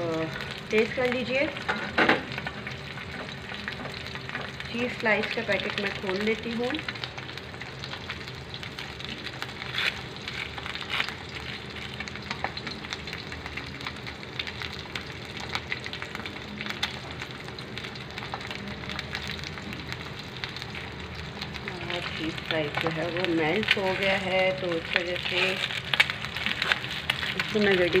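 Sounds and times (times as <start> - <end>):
egg and bread sizzling on griddle: 0.0 - 28.0
plastic wrapper crinkling: 21.6 - 28.0.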